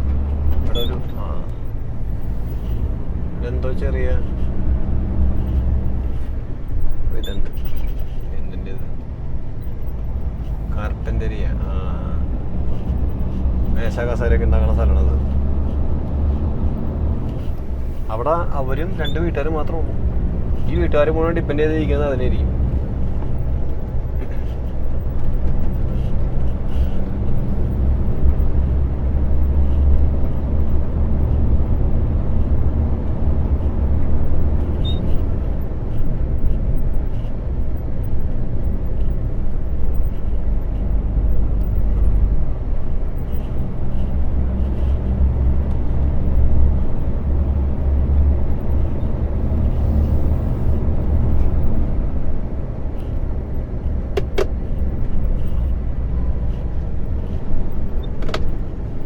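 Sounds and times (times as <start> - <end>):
road noise: 0.0 - 59.0.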